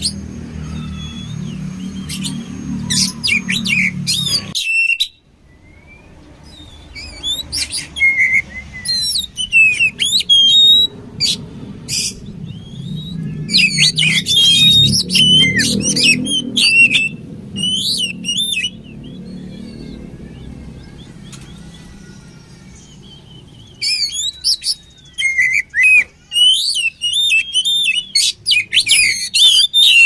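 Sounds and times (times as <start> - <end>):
bird singing: 0.0 - 30.0
low rumble: 9.7 - 22.0.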